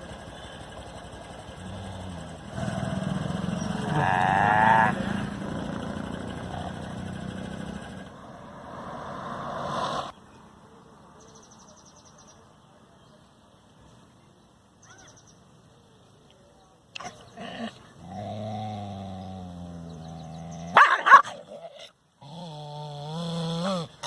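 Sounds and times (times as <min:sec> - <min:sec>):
animal call with wavering pitch: 0:03.5 - 0:05.2.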